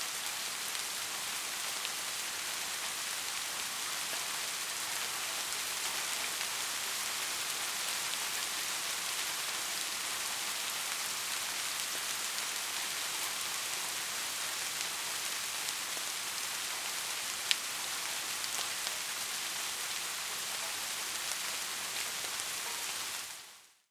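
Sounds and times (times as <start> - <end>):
steady rain falling: 0.0 - 23.9.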